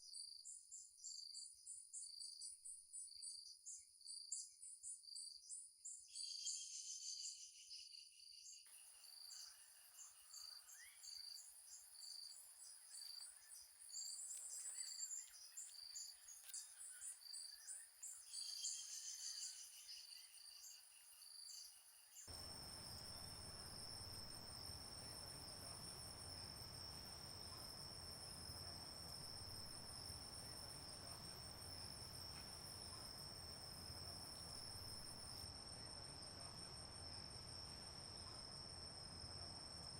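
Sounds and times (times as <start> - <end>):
steady insect trill: 0.0 - 39.9
insects chirping: 8.7 - 39.9.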